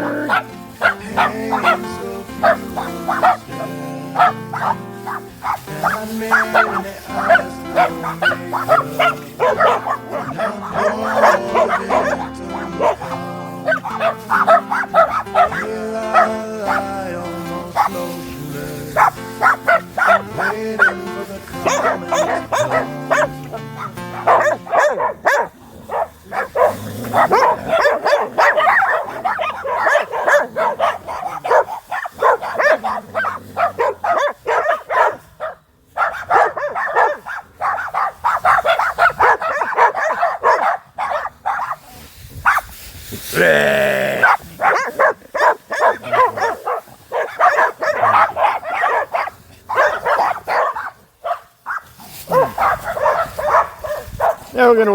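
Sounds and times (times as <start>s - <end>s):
dog drawn-out wavering call: 0.0s - 16.9s, 21.6s - 35.2s
background music: 0.0s - 41.6s, 43.4s - 50.8s
dogs barking rapidly: 0.0s - 54.9s.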